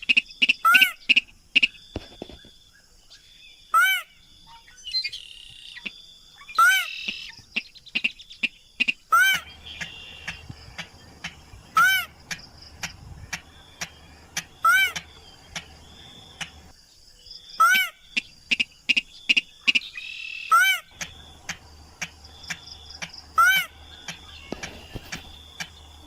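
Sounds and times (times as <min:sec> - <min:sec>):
insects buzzing: 0:00.0 - 0:26.0
rail bird calling: 0:00.0 - 0:26.0
rapid clicking ticks: 0:09.7 - 0:11.5, 0:12.2 - 0:16.7, 0:20.9 - 0:23.3.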